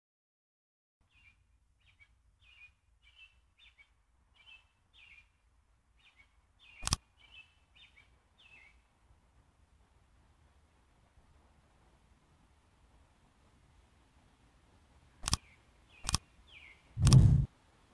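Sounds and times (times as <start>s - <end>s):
bird chirping: 1.0s - 5.4s, 6.0s - 8.8s, 15.3s - 17.5s
sharp click: 6.8s - 7.0s, 15.2s - 15.4s, 16.0s - 16.2s, 17.0s - 17.5s.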